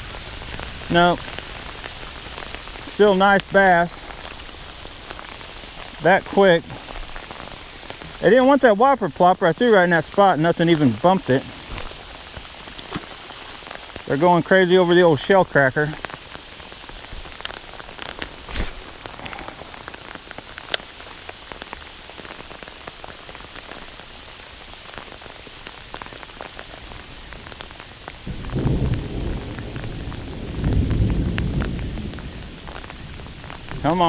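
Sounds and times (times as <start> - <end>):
heavy rain falling: 0.0 - 34.0
raindrops ticking close by: 0.0 - 34.0
low rumble of thunder: 28.2 - 34.0.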